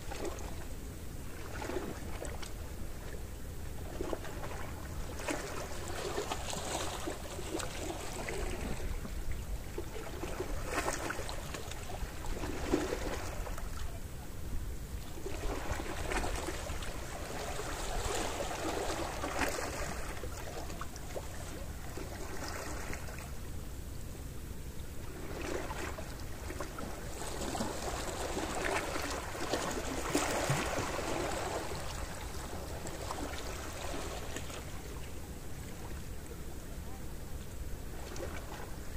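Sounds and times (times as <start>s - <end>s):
sea waves washing in: 25.0s - 35.2s.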